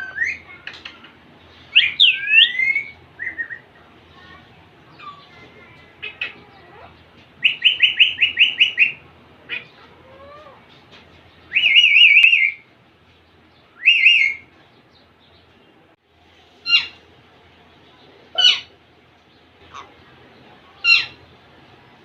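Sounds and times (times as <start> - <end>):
parakeet chirping and trilling: 1.6 - 10.5, 11.4 - 12.6, 16.6 - 17.0, 18.3 - 18.8, 19.6 - 20.1, 20.7 - 21.4.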